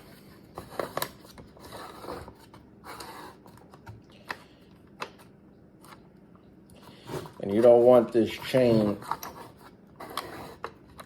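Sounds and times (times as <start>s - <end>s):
soft rubbing of parts: 6.8s - 11.0s.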